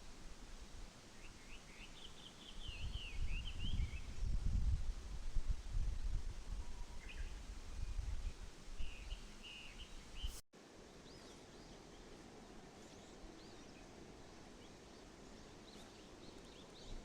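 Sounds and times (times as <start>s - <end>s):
small birds chirping: 6.4s - 17.0s.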